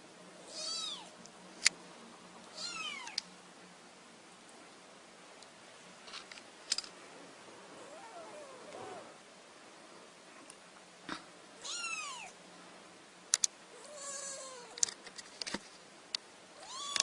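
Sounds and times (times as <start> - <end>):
cat meowing: 0.5 - 1.1, 2.6 - 3.2, 11.6 - 12.3, 16.6 - 17.0
sharp clicks: 13.3 - 13.5.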